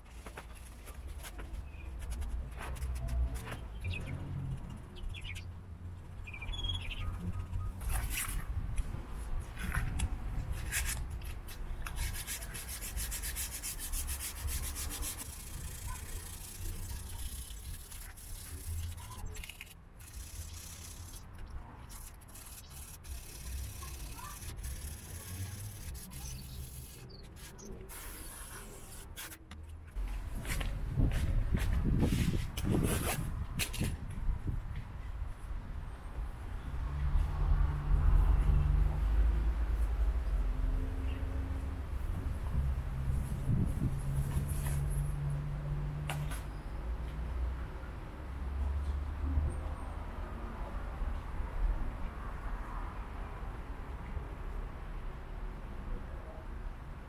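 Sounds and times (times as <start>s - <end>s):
rubbing and scraping: 9.5s - 33.9s
fast rasping strokes: 11.8s - 29.5s.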